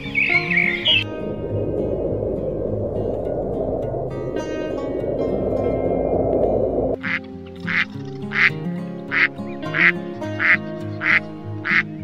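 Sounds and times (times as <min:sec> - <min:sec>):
background music: 0:00.0 - 0:12.0
low rushing noise: 0:00.3 - 0:07.3.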